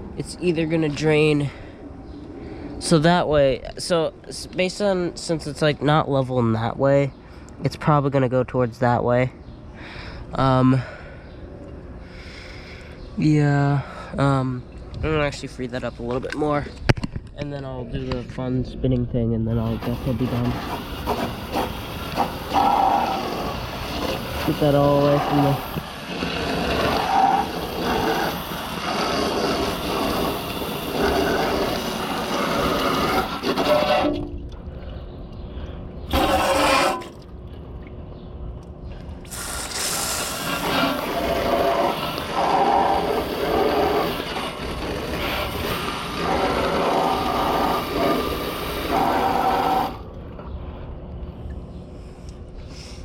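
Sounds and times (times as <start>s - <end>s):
hose spraying water on metal unit: 19.6s - 34.2s, 36.1s - 37.2s, 39.3s - 50.0s.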